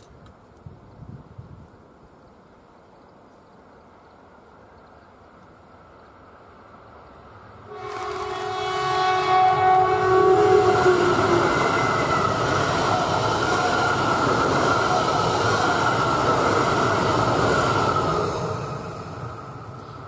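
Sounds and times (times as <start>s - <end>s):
train passing rumble: 5.7s - 20.0s
train horn: 7.7s - 16.0s.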